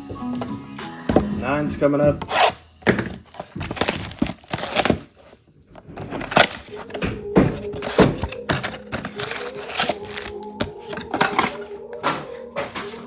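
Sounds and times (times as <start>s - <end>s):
cardboard box being torn open: 2.2s - 5.2s, 6.0s - 11.1s.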